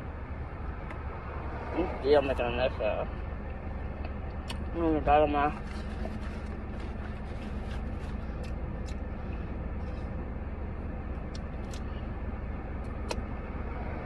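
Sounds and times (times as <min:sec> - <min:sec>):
car cabin hum: 0:00.0 - 0:13.8.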